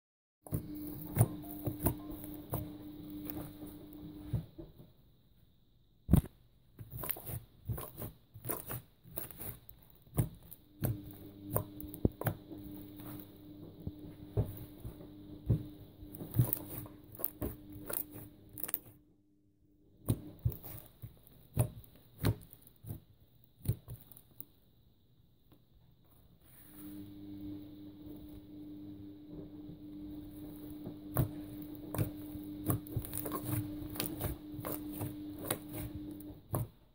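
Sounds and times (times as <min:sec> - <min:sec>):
low steady hum: 0:00.5 - 0:06.3, 0:07.1 - 0:22.8, 0:24.9 - 0:36.9.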